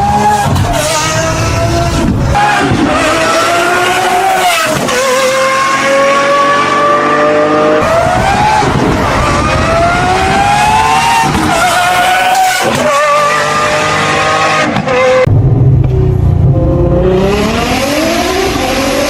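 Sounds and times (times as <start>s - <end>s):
supercar engine accelerating: 13.1s - 19.0s.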